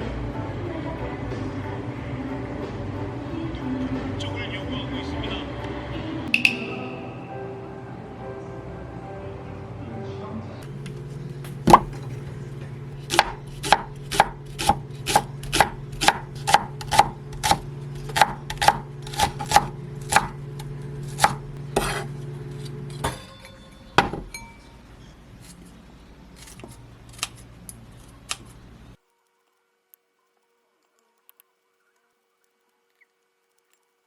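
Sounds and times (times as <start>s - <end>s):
knife chopping on wooden board: 11.5s - 12.1s, 13.0s - 22.2s.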